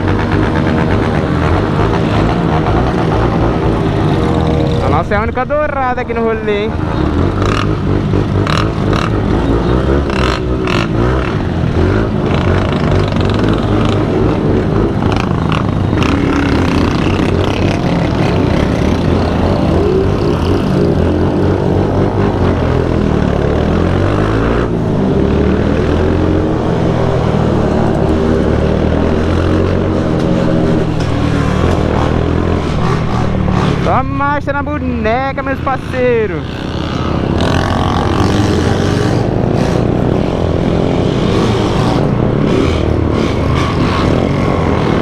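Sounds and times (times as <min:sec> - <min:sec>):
motorcycle engines revving: 0:00.0 - 0:45.0.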